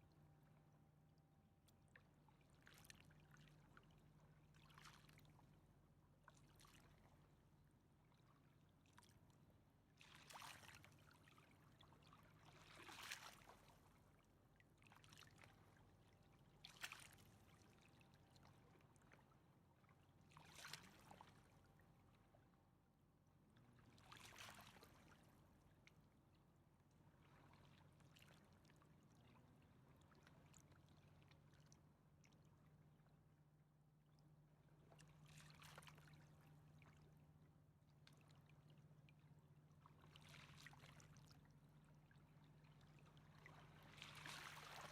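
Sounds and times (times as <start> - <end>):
river water lapping: 42.7 - 44.9
soft splashing washes: 43.7 - 44.9.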